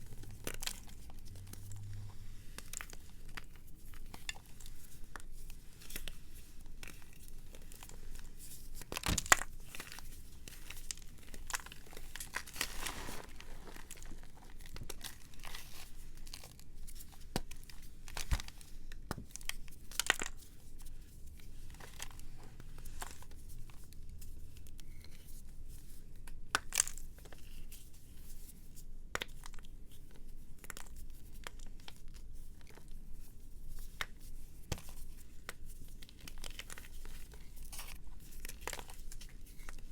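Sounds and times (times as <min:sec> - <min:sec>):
dry material crackling and crunching: 0:00.0 - 0:23.9.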